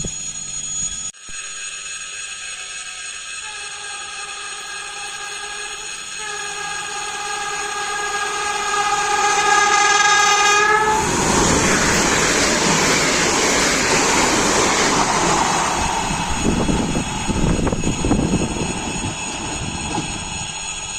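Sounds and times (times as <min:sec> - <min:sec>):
train horn chord: 0:03.4 - 0:11.8
train rushing past: 0:03.5 - 0:20.9
wheel clatter over rail joints: 0:11.0 - 0:20.9.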